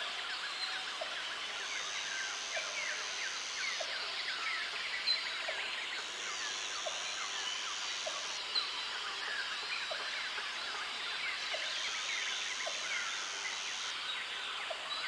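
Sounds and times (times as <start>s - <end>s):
steady natural hiss: 0.0s - 15.0s.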